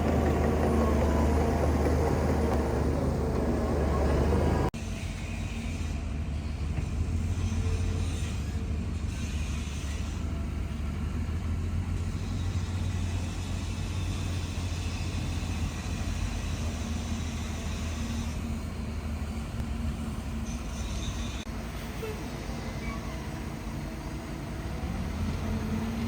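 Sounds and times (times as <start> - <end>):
bulldozer diesel engine running: 0.0 - 4.8.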